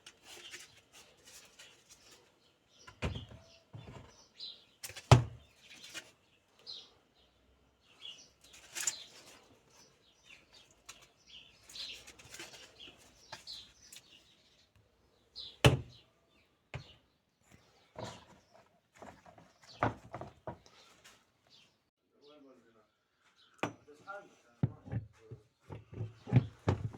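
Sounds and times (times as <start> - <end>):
birds chirping: 0.3 - 24.3
knocks and clicks of hand work: 23.6 - 23.8, 25.7 - 26.9.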